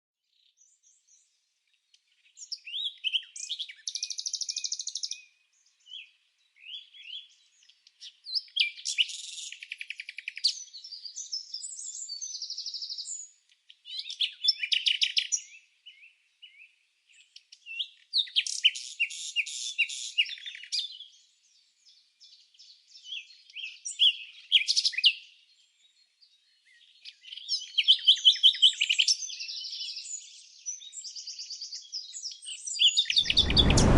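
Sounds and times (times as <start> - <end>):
songbird trills and chirps: 0.4 - 33.1.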